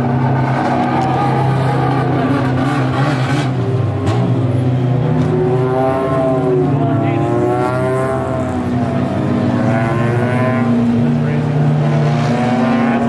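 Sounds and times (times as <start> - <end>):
race car engines passing: 0.0 - 13.0.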